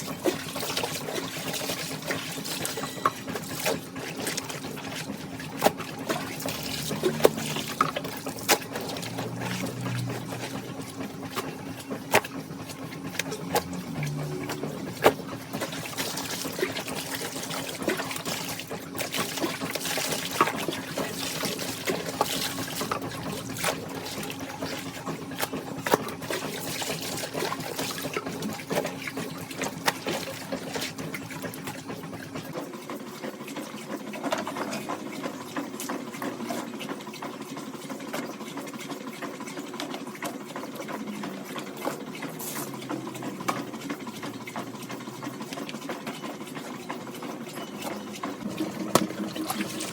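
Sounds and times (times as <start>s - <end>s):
washing machine motor hum: 0.0s - 49.9s
water splashing in washing machine: 0.0s - 49.9s.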